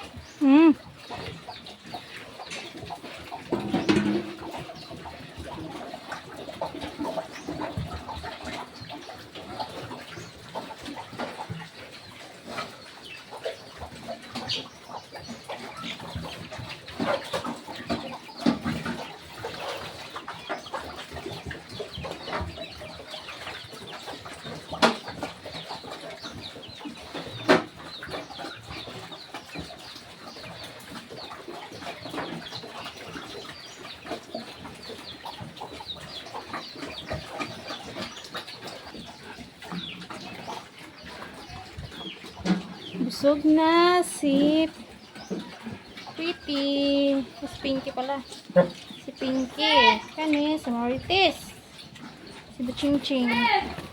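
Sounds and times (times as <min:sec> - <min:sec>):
chickens clucking: 0:00.0 - 0:53.9
sharp knocks: 0:03.5 - 0:04.6.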